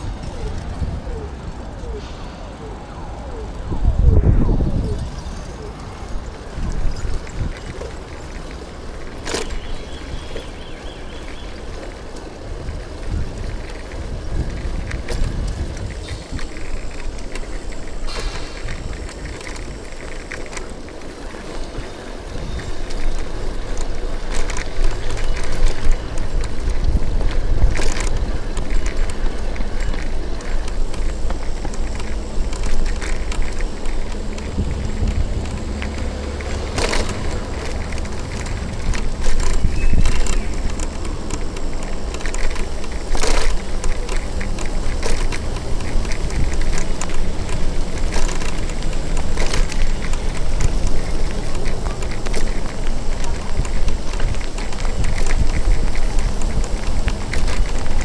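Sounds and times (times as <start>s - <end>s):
wind on microphone: 0.0s - 8.1s, 12.4s - 20.3s, 21.6s - 58.0s
road noise: 0.0s - 58.0s
sharp clicks: 22.8s - 58.0s.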